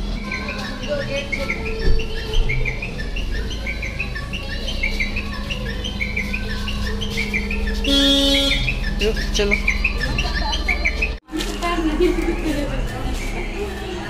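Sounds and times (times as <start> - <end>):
bird chirping: 0.0 - 11.2.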